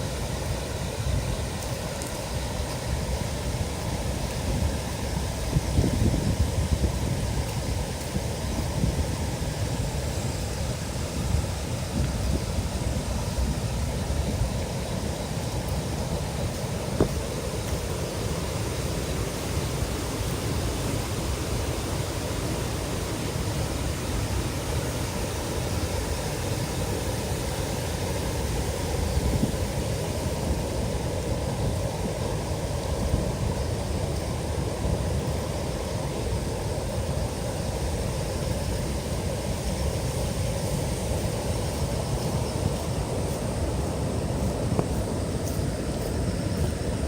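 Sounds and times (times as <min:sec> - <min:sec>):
flooded river roaring: 0:00.0 - 0:47.0.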